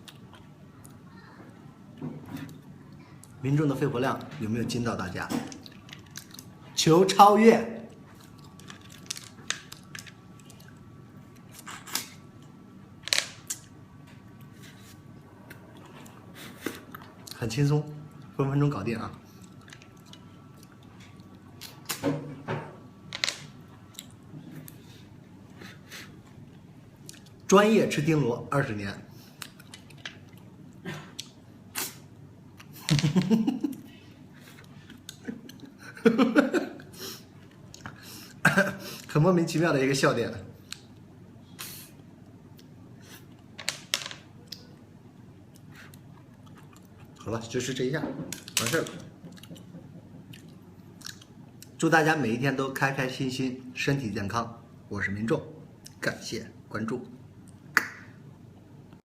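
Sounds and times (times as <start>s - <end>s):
man laughing: 32.8s - 34.0s, 35.2s - 36.9s.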